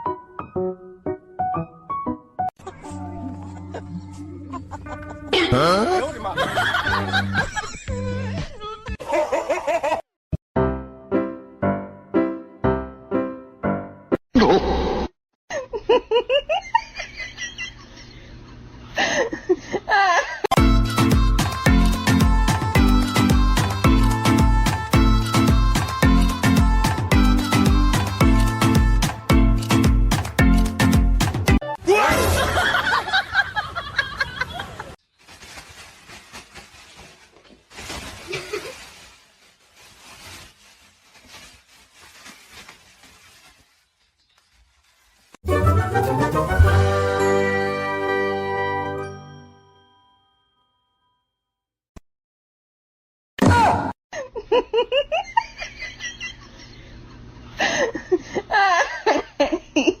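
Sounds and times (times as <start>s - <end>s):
person laughing and snickering: 2.6s - 10.0s, 14.4s - 14.8s.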